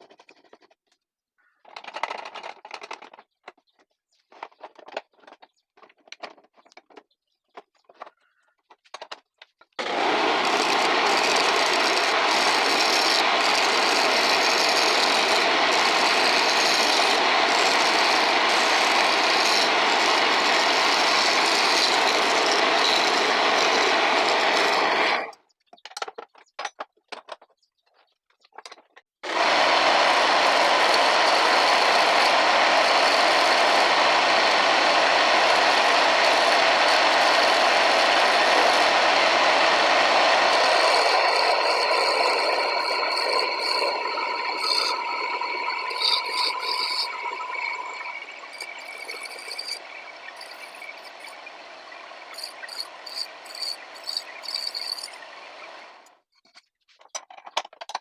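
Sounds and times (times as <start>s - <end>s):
wood lathe running: 9.8s - 25.3s, 29.2s - 56.1s.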